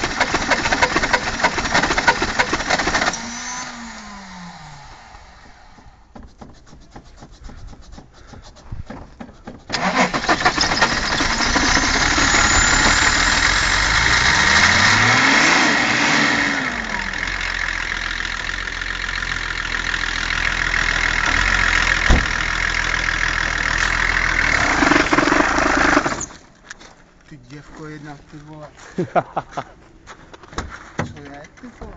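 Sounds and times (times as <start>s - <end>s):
engine cranking: 0.0s - 3.6s, 6.5s - 26.5s
diesel engine running and revving: 0.0s - 5.4s, 9.8s - 26.3s.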